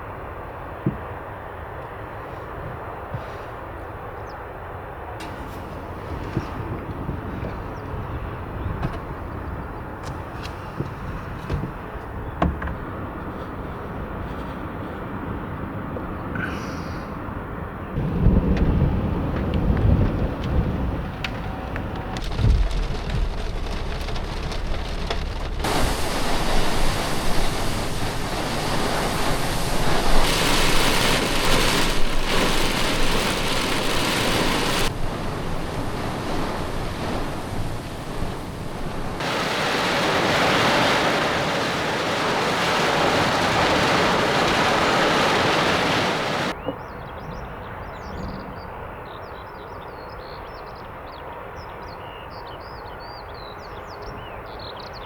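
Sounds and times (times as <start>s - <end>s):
rain and wind rushing: 5.2s - 12.9s, 18.0s - 46.6s
thunder rumble: 18.0s - 46.6s.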